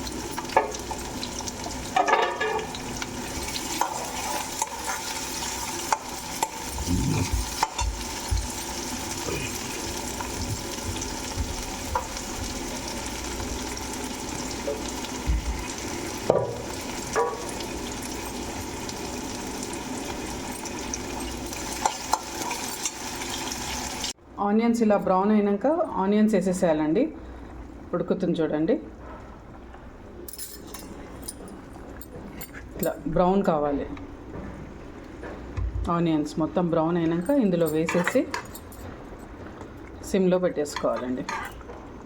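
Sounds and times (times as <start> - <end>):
onions sizzling in oil: 0.0 - 24.2
spoon scraping a pan: 40.9 - 41.6.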